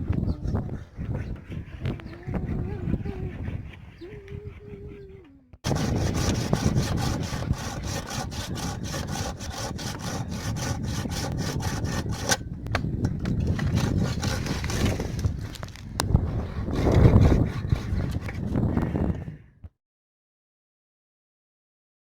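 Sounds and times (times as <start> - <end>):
saw cutting wood: 5.6 - 12.4, 13.4 - 18.6.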